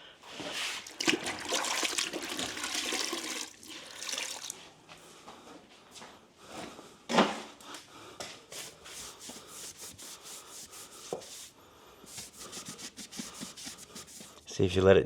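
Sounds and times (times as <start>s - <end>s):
sponge scrubbing on cement: 8.5s - 14.5s.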